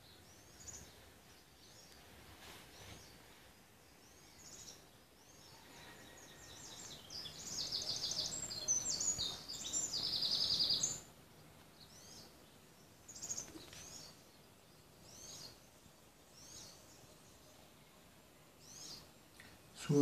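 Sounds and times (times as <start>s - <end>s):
songbird trilling: 6.4s - 11.1s.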